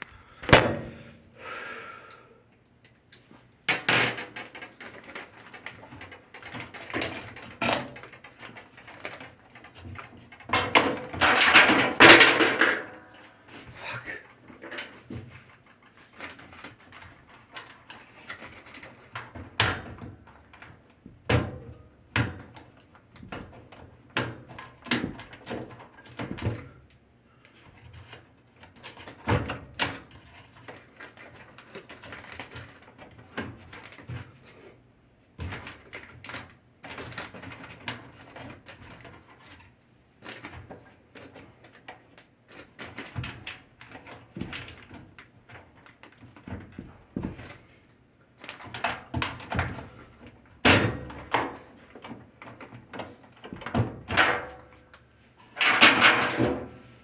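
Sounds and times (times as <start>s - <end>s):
tools knocking and scraping metal: 3.2s - 12.9s.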